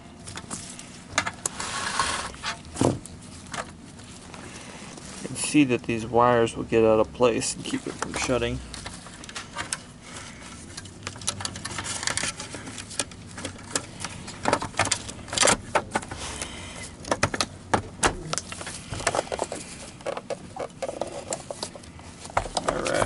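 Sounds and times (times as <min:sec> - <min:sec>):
plastic parts clicking and knocking: 0:10.7 - 0:16.1, 0:16.9 - 0:23.0.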